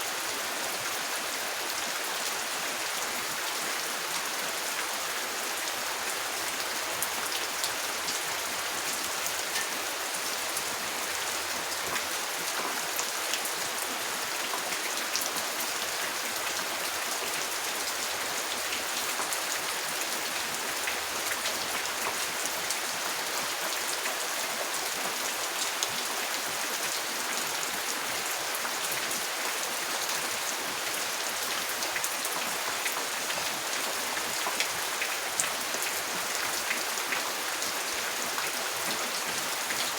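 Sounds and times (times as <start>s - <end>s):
steady rain with ticking drops: 0.0s - 39.9s.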